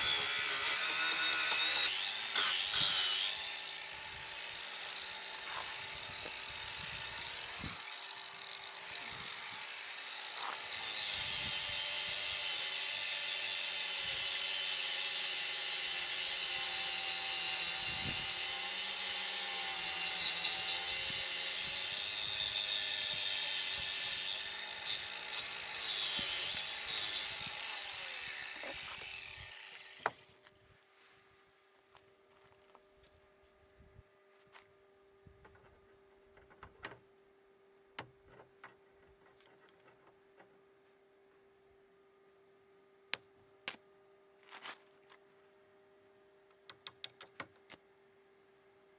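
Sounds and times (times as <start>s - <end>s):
power tool cutting wood: 0.0s - 30.4s.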